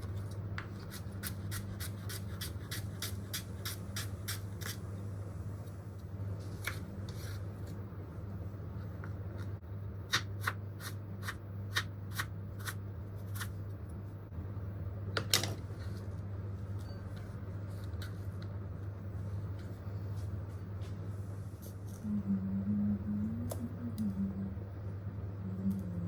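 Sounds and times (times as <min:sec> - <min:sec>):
steady low hum: 0:00.0 - 0:26.0
low wavering tone: 0:22.0 - 0:24.7.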